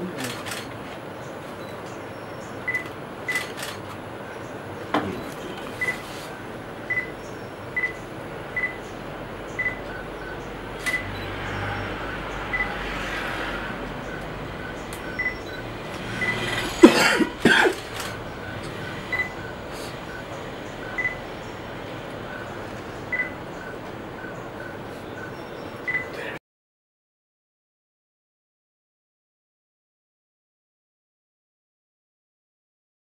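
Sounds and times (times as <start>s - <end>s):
steady background hiss: 0.0s - 12.5s, 13.6s - 26.4s
high beep-like bird calls: 0.2s - 13.2s, 14.0s - 16.8s, 17.9s - 26.3s.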